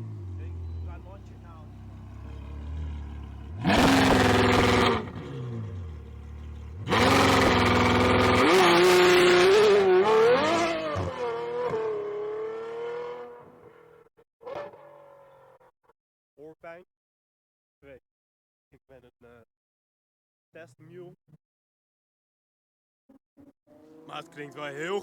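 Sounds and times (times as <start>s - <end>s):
sports car engine revving: 0.0s - 13.8s.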